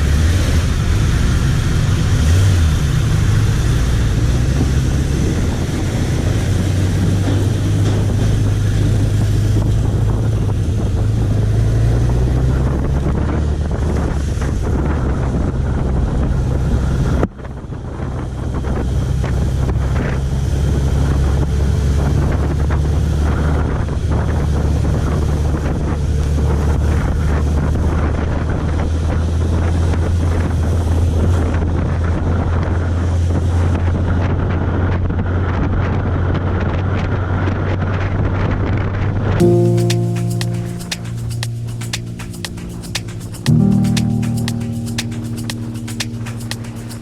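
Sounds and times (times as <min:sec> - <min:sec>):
wind rush on microphone: 0:03.6 - 0:20.6.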